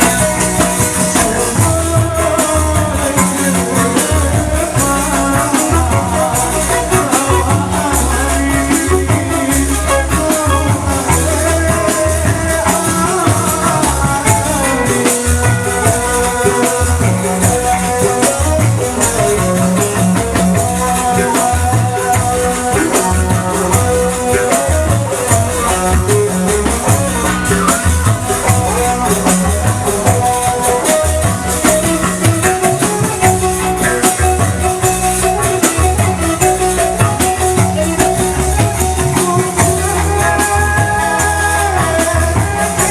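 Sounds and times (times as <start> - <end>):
high percussion shimmer: 0.0 - 42.9
live ensemble music: 0.0 - 42.9
pulsing drum beat: 0.0 - 42.9.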